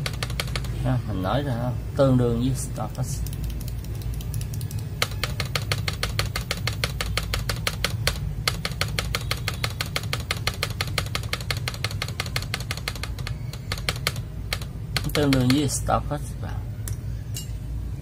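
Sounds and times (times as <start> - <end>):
mechanical keyboard key clacking: 0.0 - 0.8, 2.9 - 15.8.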